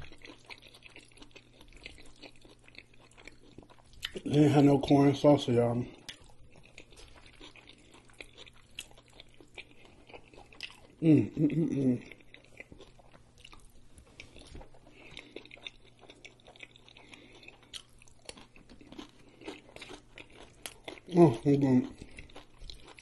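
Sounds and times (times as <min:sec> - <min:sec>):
man chewing food: 0:00.0 - 0:23.0
man humming: 0:11.0 - 0:12.0.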